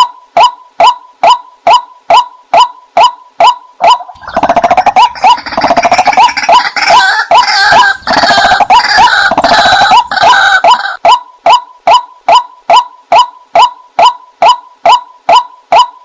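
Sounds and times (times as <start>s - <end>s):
waterhen calls: 1.2s - 15.9s.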